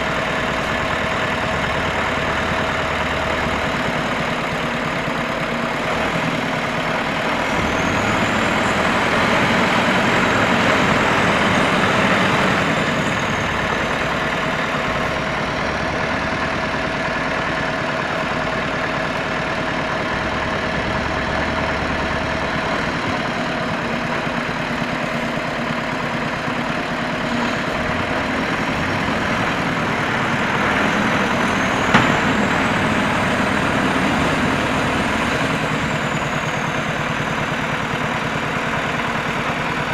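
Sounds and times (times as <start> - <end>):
truck diesel engine running: 0.0 - 39.9
sharp knock: 31.8 - 32.6.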